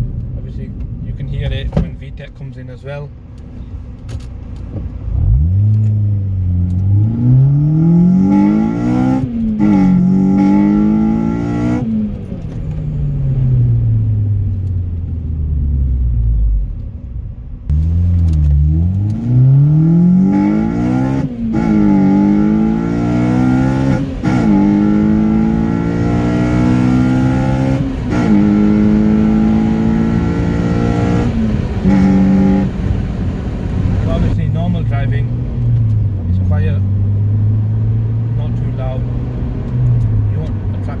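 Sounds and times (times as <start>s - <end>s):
car engine accelerating: 3.4s - 41.0s
engine intake roar: 17.7s - 35.4s.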